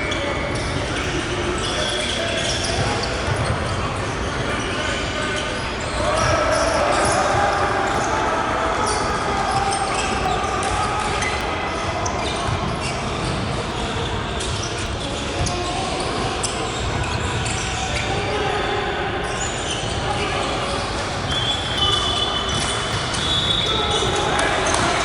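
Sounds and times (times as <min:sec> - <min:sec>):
indistinct voices echoing: 0:00.0 - 0:25.0
basketball bouncing on court: 0:00.4 - 0:04.6, 0:06.0 - 0:08.2, 0:08.8 - 0:18.1.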